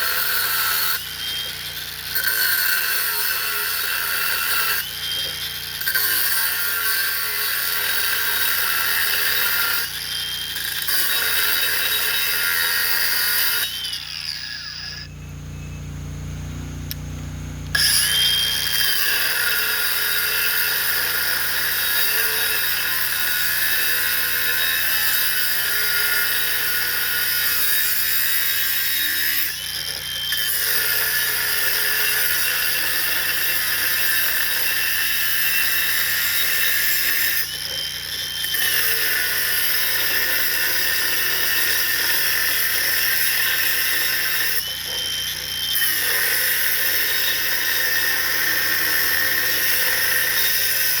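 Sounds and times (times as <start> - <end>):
power tool cutting steel pipe: 0.0 - 15.2, 17.7 - 51.0
thin steady whine: 13.6 - 21.8.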